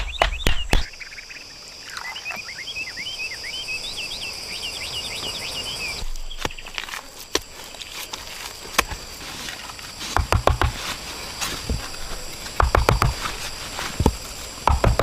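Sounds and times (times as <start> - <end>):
insect chorus: 0.0 - 15.0
knocks and clacks on wood: 10.1 - 10.9, 11.6 - 13.4, 14.0 - 15.0.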